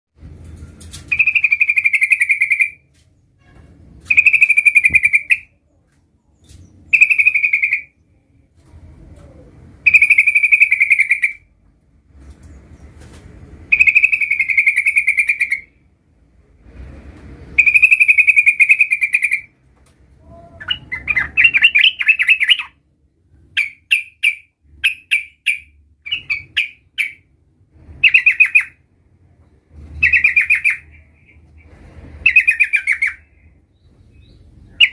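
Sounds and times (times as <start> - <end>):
bird singing trilled phrases: 1.1 - 2.8, 4.0 - 5.6, 6.3 - 8.2, 9.8 - 11.4, 13.7 - 15.7, 17.6 - 19.5, 20.3 - 22.8, 23.6 - 27.3, 28.0 - 28.8, 30.0 - 31.4, 32.2 - 34.9.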